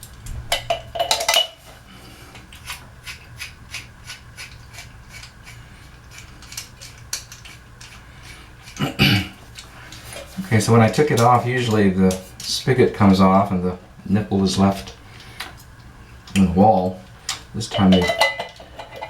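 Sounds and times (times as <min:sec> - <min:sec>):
metal parts and tools clinking: 0:17.3 - 0:19.0.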